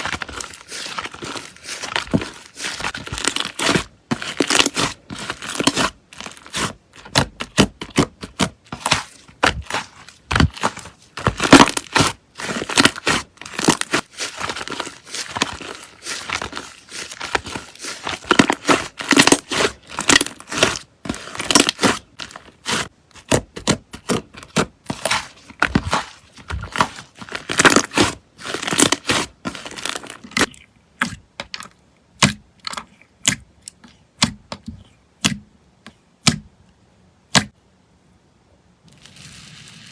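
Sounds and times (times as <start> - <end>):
slime crackling and popping: 0.0 - 31.1.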